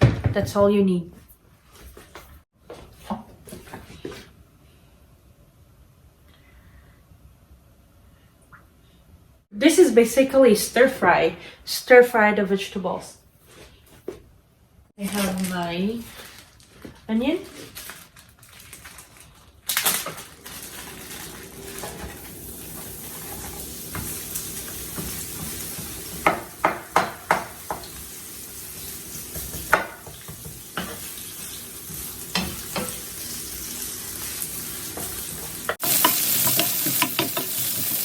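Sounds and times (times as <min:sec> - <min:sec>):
onion sizzling in a frying pan: 0:20.1 - 0:38.0
utensil clacking against a pan: 0:35.7 - 0:37.7.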